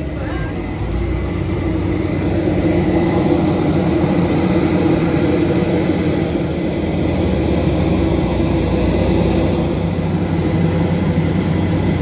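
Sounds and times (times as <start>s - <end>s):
jet airliner machinery rumble: 0.0s - 12.0s.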